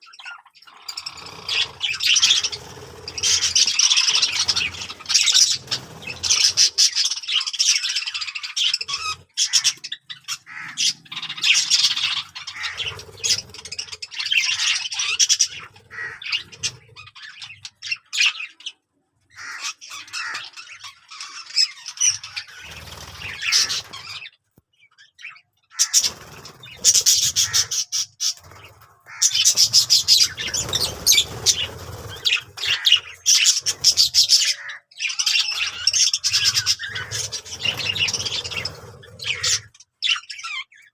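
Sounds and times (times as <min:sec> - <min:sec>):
budgerigars chattering: 0:00.0 - 0:18.8, 0:19.4 - 0:24.4, 0:25.0 - 0:40.9.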